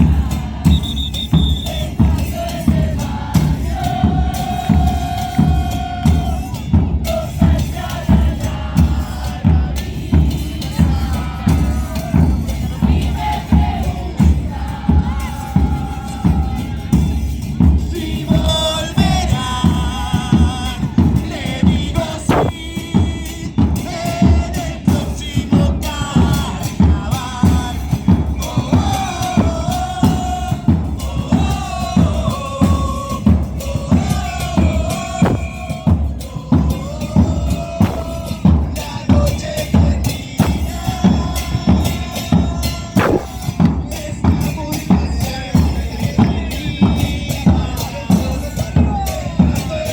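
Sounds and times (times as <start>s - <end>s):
voices singing: 0.0s - 49.9s
bass drums and snares playing: 22.0s - 23.2s, 35.0s - 35.9s, 37.7s - 38.8s, 40.3s - 41.7s, 42.8s - 44.4s.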